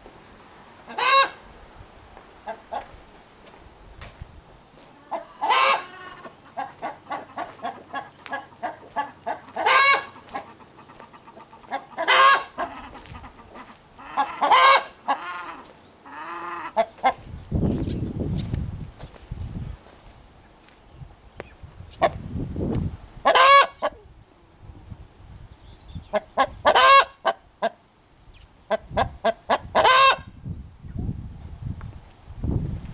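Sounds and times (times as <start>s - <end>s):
rooster clucking: 0.9s - 1.4s, 4.9s - 17.2s, 23.2s - 24.0s, 26.1s - 27.8s, 28.7s - 30.3s
rooster squawking: 0.9s - 1.4s, 5.0s - 17.2s, 23.3s - 24.0s, 29.8s - 30.3s.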